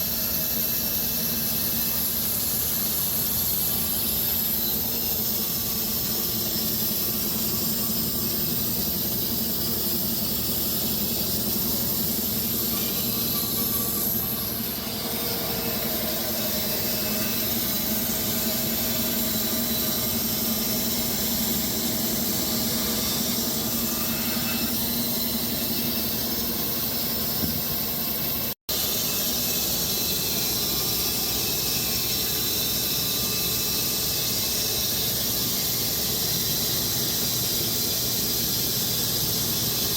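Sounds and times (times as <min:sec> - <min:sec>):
low motor hum: 0:10.8 - 0:26.3.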